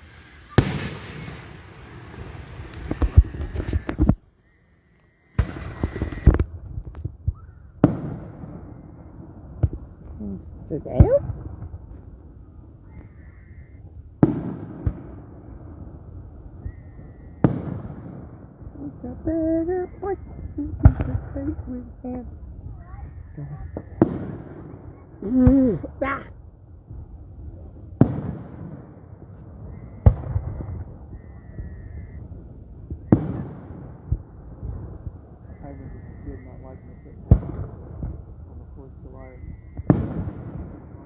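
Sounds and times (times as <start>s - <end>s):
fireworks explosions: 0.0s - 41.0s
rolling rumble: 18.6s - 41.0s.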